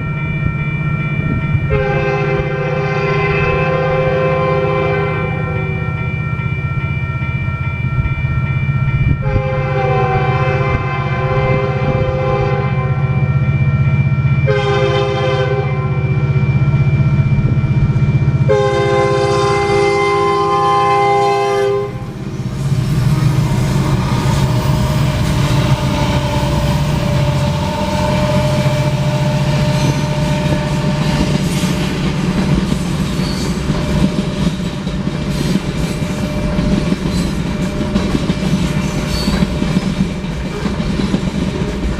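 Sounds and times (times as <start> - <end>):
locomotive air horn blasts: 1.7 - 6.0, 9.2 - 13.3, 14.5 - 16.2, 18.5 - 22.2, 23.4 - 31.8
diesel engines droning: 16.1 - 39.0
train wheels clicking over rail joints: 22.2 - 41.9.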